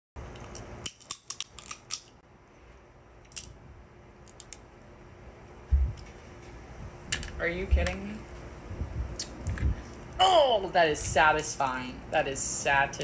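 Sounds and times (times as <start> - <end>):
crab shells cracking: 0.4 - 2.2, 3.2 - 3.6, 4.2 - 4.6.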